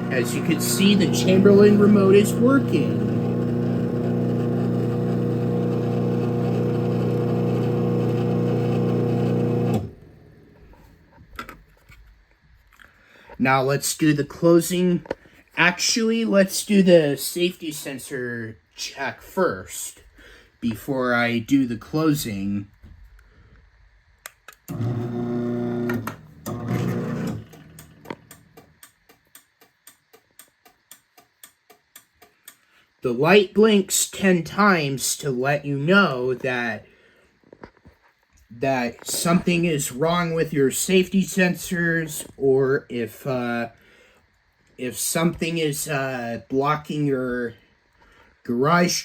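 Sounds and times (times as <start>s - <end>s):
garage door opener motor humming: 0.0s - 10.6s, 24.7s - 28.6s.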